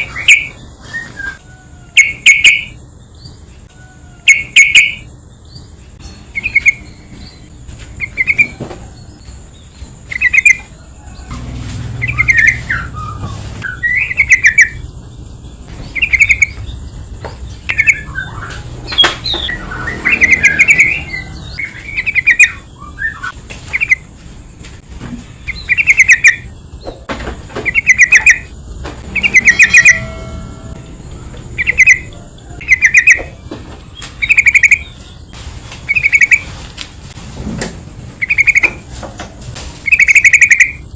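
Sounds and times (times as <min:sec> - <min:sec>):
bird chattering calls: 0:00.0 - 0:01.4, 0:02.0 - 0:02.8, 0:04.2 - 0:05.1, 0:06.3 - 0:07.0, 0:08.0 - 0:08.6, 0:10.1 - 0:10.7, 0:12.0 - 0:14.9, 0:15.7 - 0:16.9, 0:17.5 - 0:24.1, 0:25.4 - 0:30.3, 0:31.4 - 0:35.3, 0:35.9 - 0:36.5, 0:38.2 - 0:38.8, 0:39.8 - 0:40.9
faint high-pitched tone: 0:29.0 - 0:33.2.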